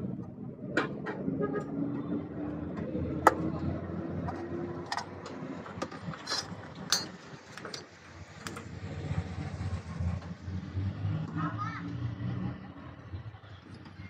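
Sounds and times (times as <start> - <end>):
hand tools clicking and knocking: 4.2 - 8.6.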